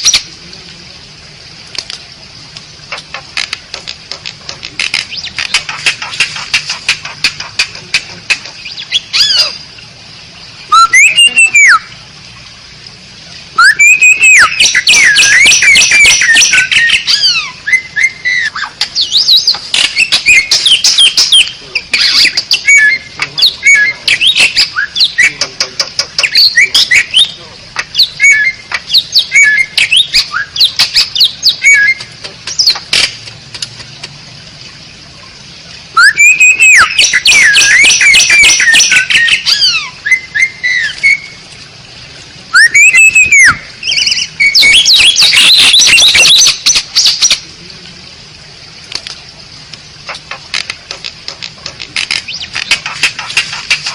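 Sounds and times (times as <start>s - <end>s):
starling singing: 4.8s - 9.7s, 10.7s - 11.9s, 13.6s - 32.9s, 36.0s - 41.4s, 42.5s - 47.4s.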